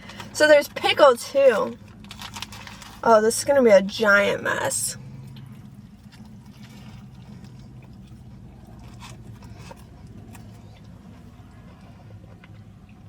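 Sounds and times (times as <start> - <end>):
steady low hum: 0.0 - 13.0
faint crunches and clicks: 1.7 - 3.0
person chewing food: 5.0 - 13.0.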